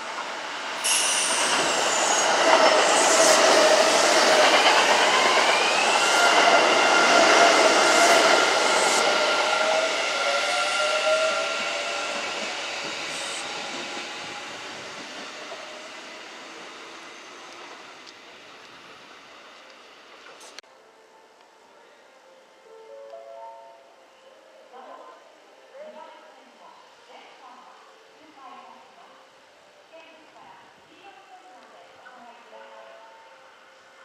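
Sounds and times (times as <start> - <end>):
train wheel and rail noise: 0.0 - 21.8, 24.1 - 34.0
train motor whine: 0.8 - 20.4.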